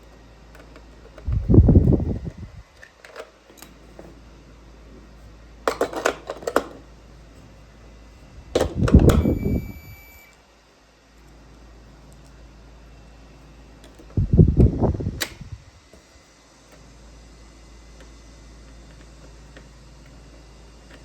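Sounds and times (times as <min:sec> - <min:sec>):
short electronic tone: 0:09.1 - 0:10.4.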